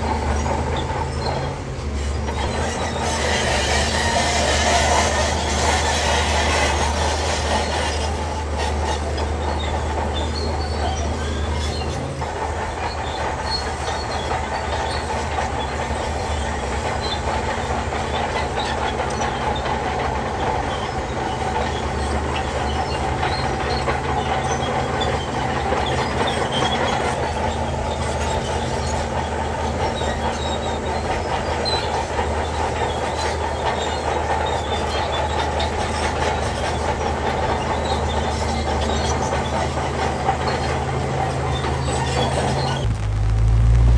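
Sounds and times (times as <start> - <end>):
steel tracks clanking and squeaking: 0.0 - 43.0
bulldozer diesel engine running: 0.0 - 43.9.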